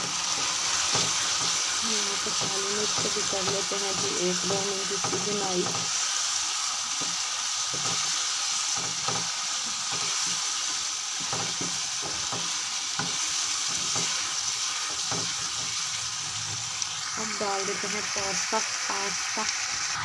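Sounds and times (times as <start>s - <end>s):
food sizzling in a wok: 0.0s - 20.0s
wooden spatula scraping a pan: 0.2s - 6.0s, 6.9s - 16.7s.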